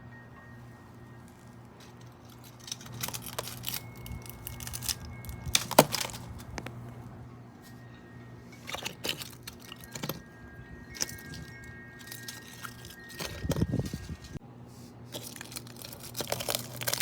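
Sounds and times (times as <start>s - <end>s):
crackling and snapping: 2.5s - 6.8s, 15.1s - 17.0s.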